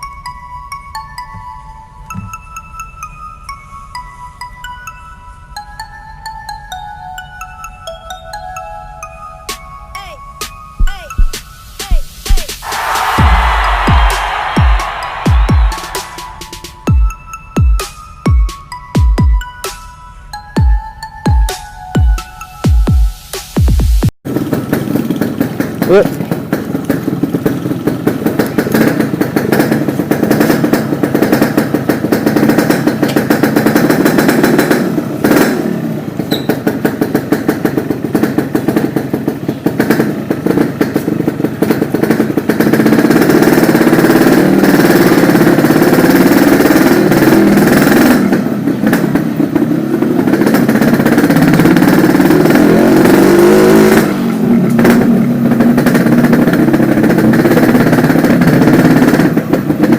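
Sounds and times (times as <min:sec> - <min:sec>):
motorcycle engine revving: 0:24.3 - 0:59.9.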